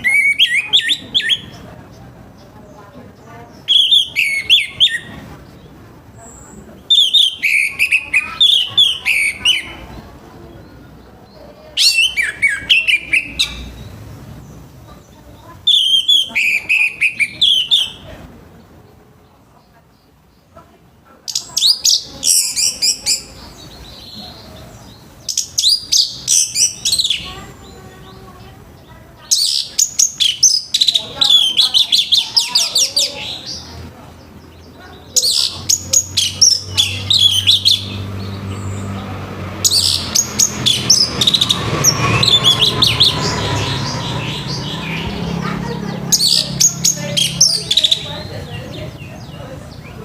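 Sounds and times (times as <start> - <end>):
thrush singing: 21.4 - 50.0.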